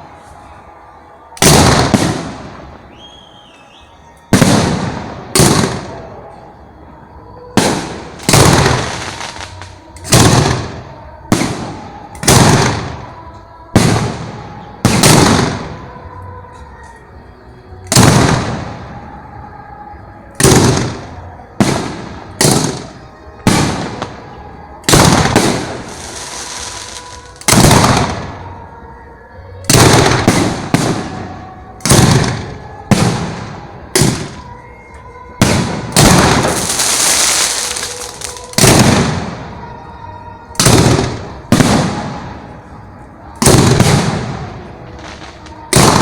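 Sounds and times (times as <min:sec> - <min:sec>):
fireworks banging: 0:01.4 - 0:06.6, 0:07.4 - 0:17.0, 0:17.8 - 0:19.0, 0:20.3 - 0:28.7, 0:29.6 - 0:46.0
fireworks crackling hiss: 0:07.1 - 0:15.9, 0:20.3 - 0:28.5, 0:29.6 - 0:40.0, 0:40.6 - 0:46.0.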